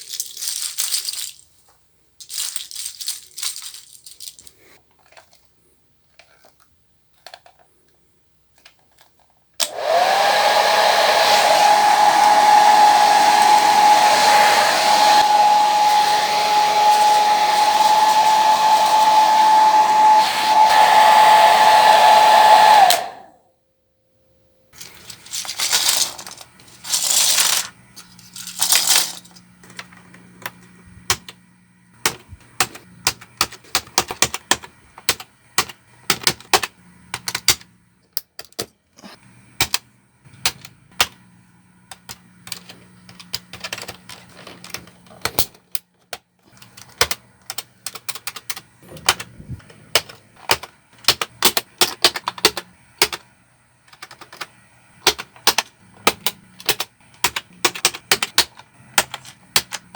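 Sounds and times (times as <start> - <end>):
keycaps clicking onto keyboard: 32.0 - 37.7, 41.9 - 59.9.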